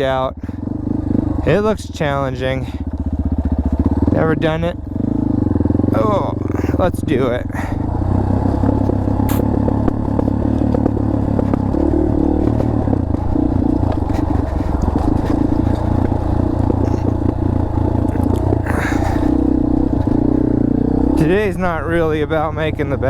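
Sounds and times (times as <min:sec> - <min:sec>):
dirt bike engine running: 0:00.0 - 0:23.0
tyres scraping over rocks: 0:08.4 - 0:20.3.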